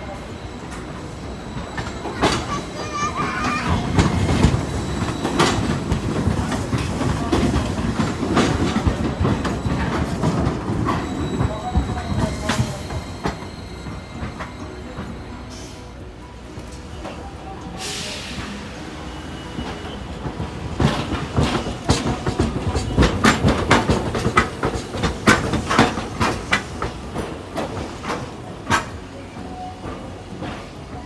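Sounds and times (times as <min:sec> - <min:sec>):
tram rumbling past: 0:00.0 - 0:31.0
wheel clacks: 0:19.7 - 0:29.2.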